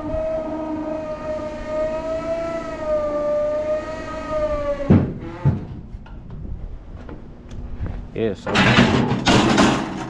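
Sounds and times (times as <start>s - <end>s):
wavering horn-like chord: 0.0s - 4.7s.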